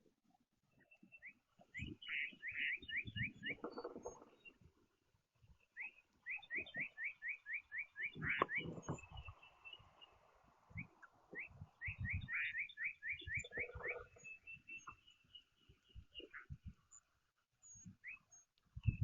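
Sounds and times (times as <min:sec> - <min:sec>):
songbird whistling: 0:01.1 - 0:03.6, 0:05.7 - 0:09.8, 0:10.7 - 0:15.5, 0:17.7 - 0:19.0.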